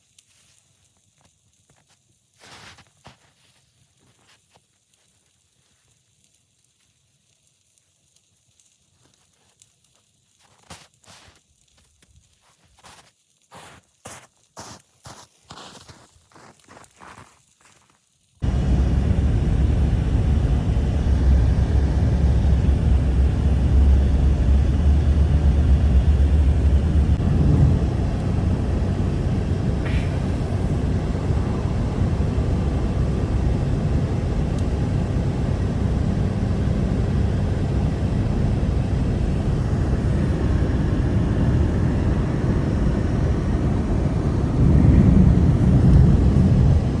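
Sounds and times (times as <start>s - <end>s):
strong blizzard wind: 18.4s - 47.0s.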